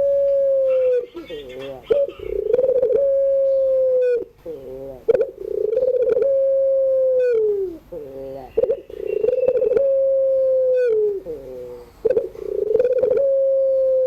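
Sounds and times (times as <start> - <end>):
dove cooing: 0.0 - 14.0
small bird chirping: 0.6 - 2.8, 7.2 - 9.9.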